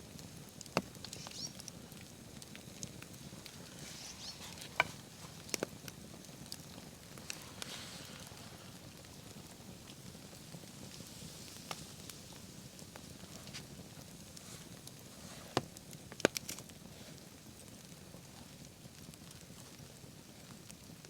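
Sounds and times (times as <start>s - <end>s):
campfire burning: 0.0s - 21.0s
fire crackling: 0.0s - 21.0s
sharp fire pops: 0.1s - 16.9s.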